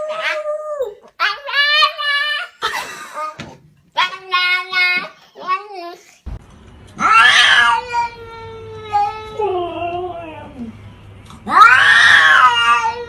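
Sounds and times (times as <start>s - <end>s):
cat meowing: 7.0s - 10.0s, 11.5s - 13.0s
cat yowling: 7.0s - 10.5s, 11.5s - 13.0s.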